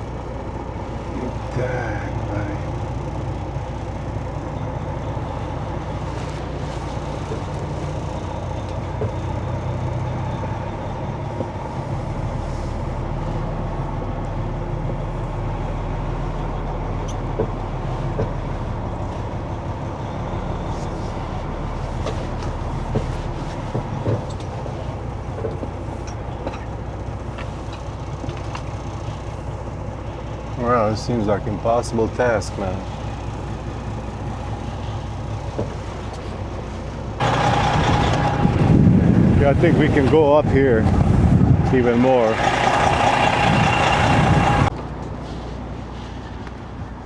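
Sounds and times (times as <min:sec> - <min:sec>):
truck diesel engine running: 0:00.0 - 0:47.0
light clicks and knocks: 0:17.0 - 0:19.3, 0:22.0 - 0:28.9.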